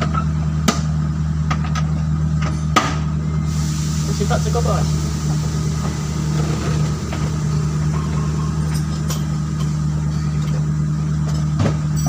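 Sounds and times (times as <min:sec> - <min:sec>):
engine idling: 0:03.2 - 0:12.0.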